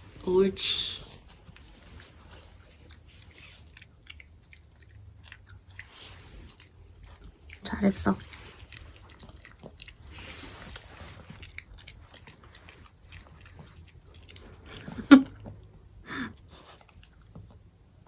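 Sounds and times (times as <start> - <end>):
dog chewing a treat: 1.0 - 18.0.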